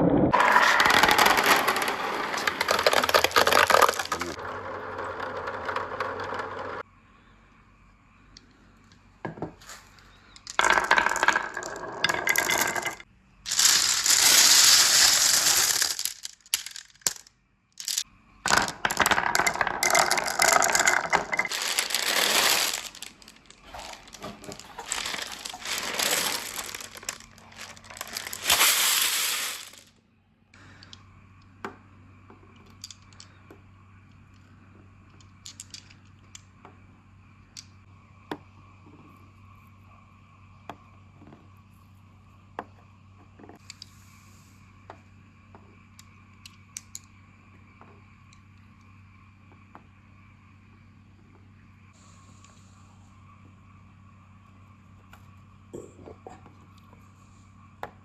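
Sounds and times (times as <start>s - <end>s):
marbles rolling down pipes: 0.3s - 6.8s, 10.3s - 29.9s, 35.1s - 36.4s, 46.4s - 47.1s.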